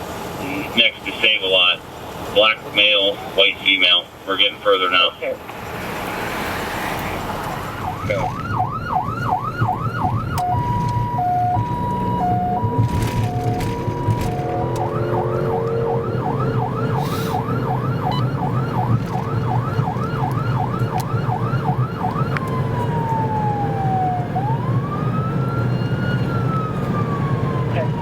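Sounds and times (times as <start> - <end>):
engine and road noise: 0.0 - 28.0
police siren: 7.6 - 28.0.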